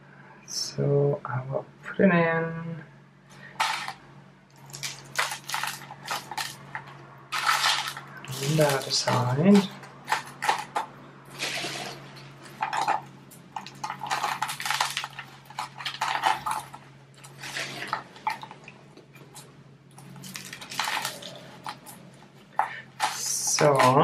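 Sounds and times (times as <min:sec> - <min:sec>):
potting mix rattling and scraping: 0:03.4 - 0:24.0.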